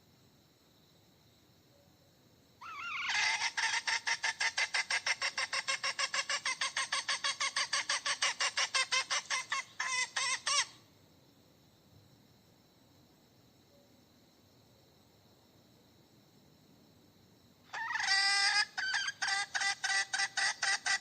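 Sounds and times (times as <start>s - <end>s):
hen calling rapidly: 2.6s - 10.8s, 17.7s - 21.0s.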